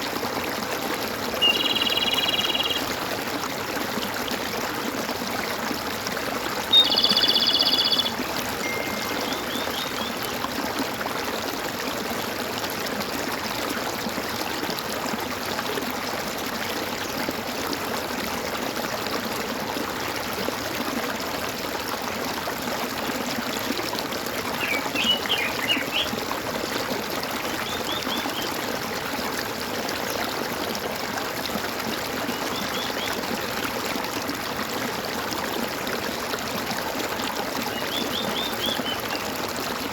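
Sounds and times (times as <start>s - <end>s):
water gurgling and trickling: 0.0s - 39.9s
birds calling: 1.4s - 2.9s, 6.7s - 10.4s, 24.6s - 26.1s.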